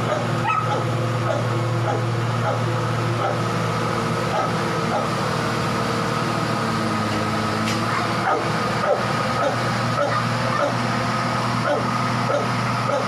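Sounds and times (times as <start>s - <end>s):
steady machine hum: 0.0s - 13.0s
dog whining and yipping: 0.1s - 1.4s.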